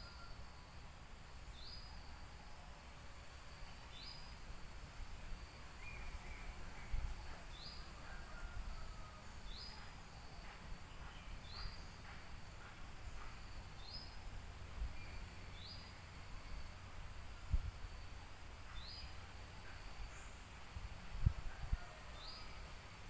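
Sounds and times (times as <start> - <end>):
faint bird chirps: 5.6 - 16.9.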